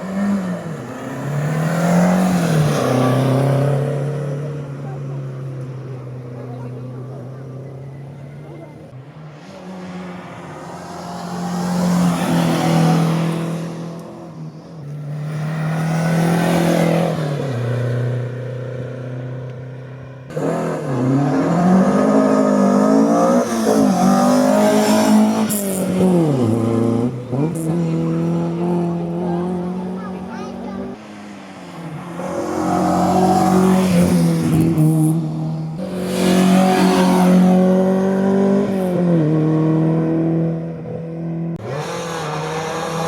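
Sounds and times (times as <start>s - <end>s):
race cars passing at full throttle: 0.0s - 43.0s
car engine revving through gear changes: 20.3s - 31.0s, 32.2s - 43.0s.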